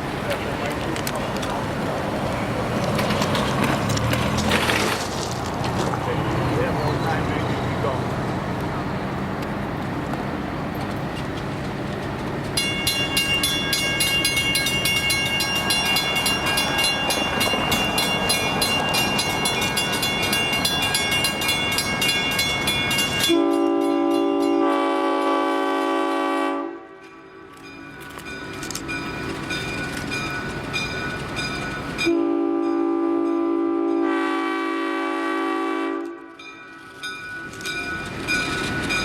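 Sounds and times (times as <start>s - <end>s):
diesel locomotive engine rumble: 0.0s - 39.0s
locomotive air horn blast: 23.3s - 27.0s, 32.1s - 36.4s.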